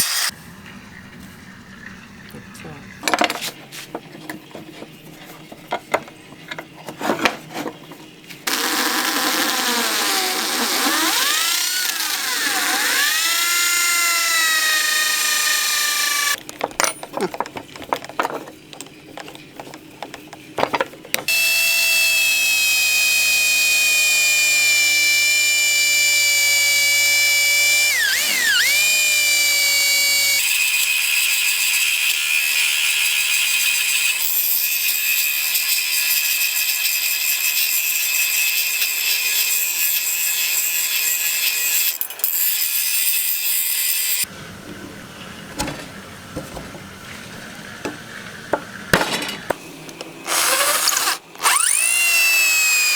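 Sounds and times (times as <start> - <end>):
power tool motor whining: 0.0 - 0.3, 8.4 - 16.4, 21.2 - 30.5, 50.2 - 52.9
handling clicks and scrapes: 3.1 - 8.5, 16.1 - 21.3, 44.4 - 51.8.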